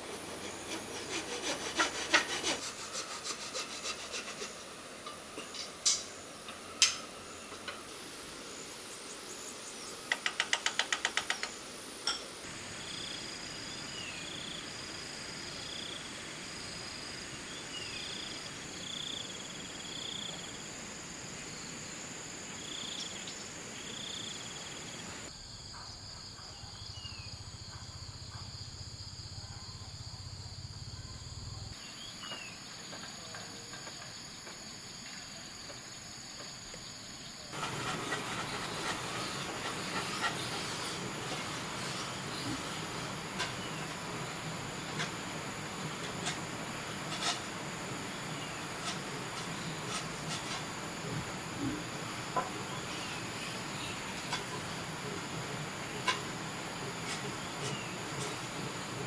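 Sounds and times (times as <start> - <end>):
rasping strokes on wood: 0.0 - 4.7, 37.6 - 43.6
outdoor background: 0.0 - 59.0.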